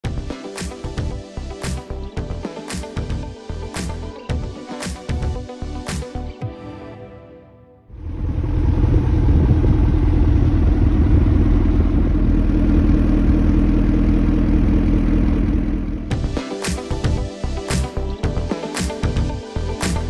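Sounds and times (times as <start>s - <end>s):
background music: 0.0s - 8.0s, 16.1s - 20.0s
car engine starting and idling: 7.9s - 16.3s.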